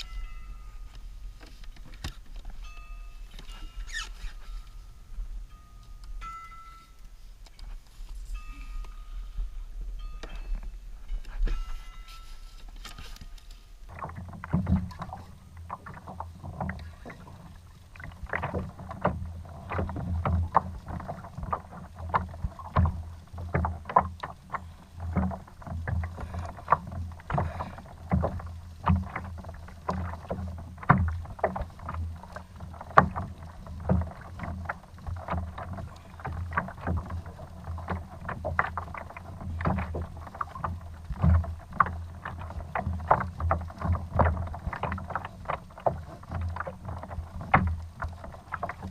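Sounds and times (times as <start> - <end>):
water knocking against plastic hull: 13.9 - 48.9.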